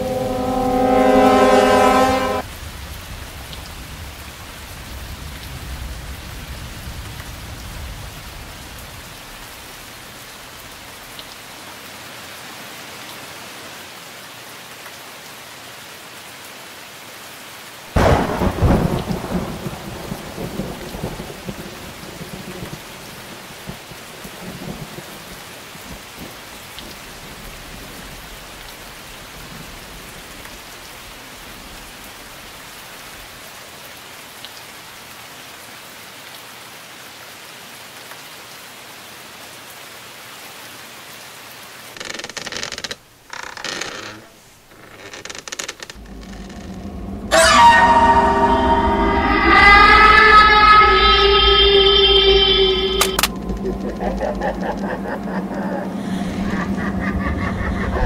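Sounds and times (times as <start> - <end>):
low rumble: 0.0 - 3.0, 45.9 - 58.0
steady rain: 0.0 - 58.0
thunderclap rumbling: 18.0 - 25.3, 45.9 - 58.0.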